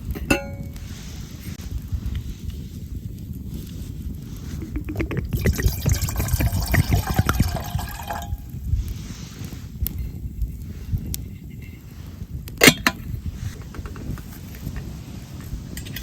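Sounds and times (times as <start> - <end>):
liquid pouring into container: 4.6 - 8.5.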